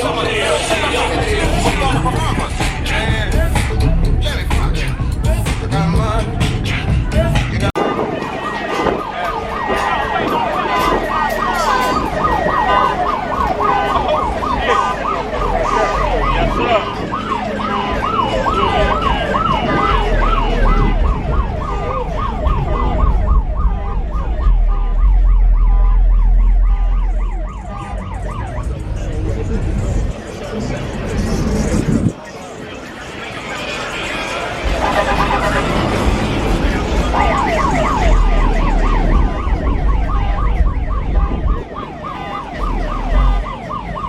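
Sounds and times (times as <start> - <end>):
siren yelping: 7.8 - 30.3, 32.1 - 44.0
deep low rumble: 19.6 - 30.2, 34.7 - 41.7.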